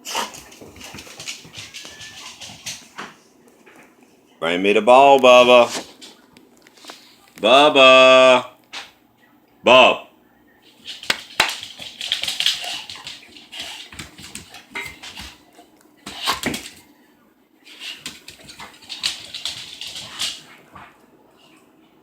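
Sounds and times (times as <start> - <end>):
dog making scratchy noises: 0.0 - 3.0, 10.7 - 15.4, 16.0 - 16.8, 17.6 - 21.0.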